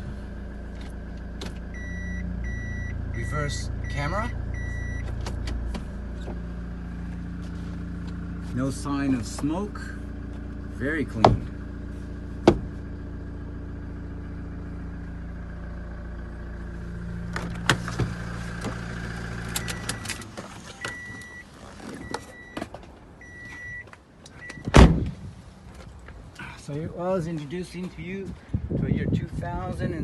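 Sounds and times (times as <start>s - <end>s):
diesel engine idling: 0.0s - 29.0s
high electronic warning beeps: 1.8s - 5.1s, 20.8s - 22.6s, 23.2s - 23.8s
loud door slam: 24.6s - 25.1s.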